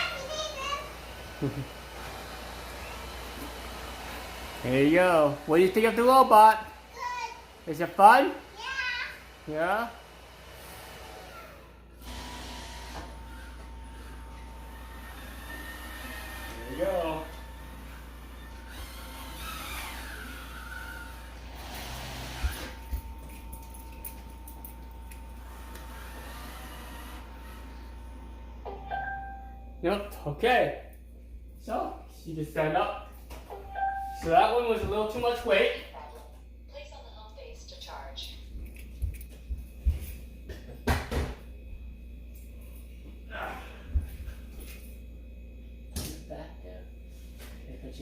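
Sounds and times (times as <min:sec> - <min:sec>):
robot vacuum humming: 0:00.0 - 0:23.4, 0:24.2 - 0:28.6
low steady hum: 0:22.4 - 0:48.0
knocks and thumps: 0:39.8 - 0:41.4.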